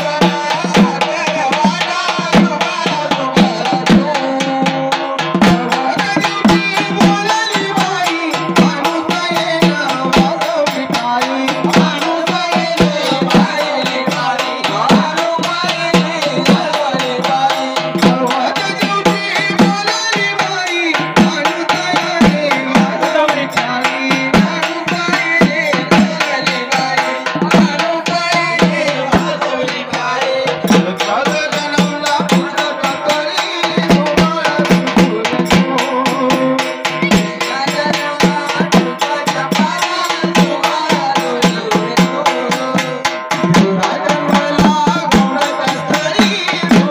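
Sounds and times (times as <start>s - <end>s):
hand drum playing: 0.0s - 46.9s
folk melody: 22.4s - 31.7s.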